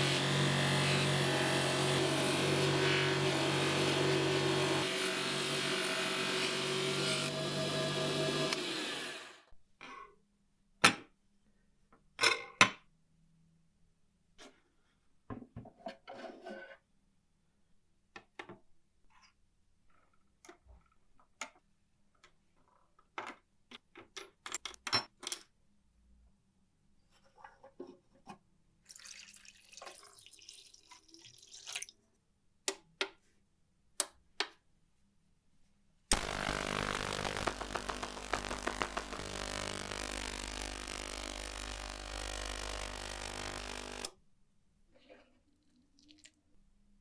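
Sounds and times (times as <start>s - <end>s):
motor-driven machine running: 36.1s - 44.1s.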